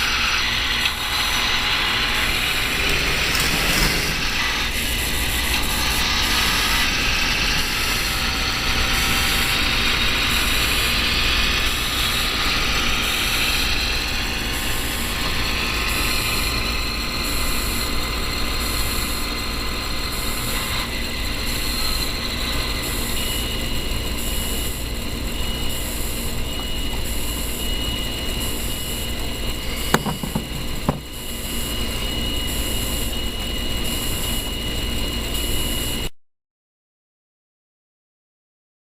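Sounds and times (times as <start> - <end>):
chassis motor and gears whirring: 0.0 - 36.1.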